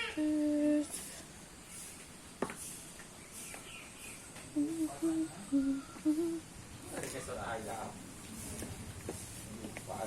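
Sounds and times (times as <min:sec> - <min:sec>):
person humming: 0:00.1 - 0:00.9, 0:04.6 - 0:06.5.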